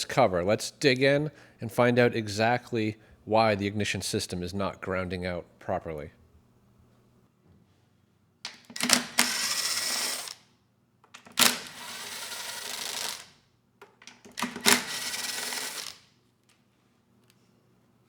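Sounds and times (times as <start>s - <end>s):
power driver running: 8.5s - 10.4s, 11.2s - 13.3s, 14.3s - 16.0s.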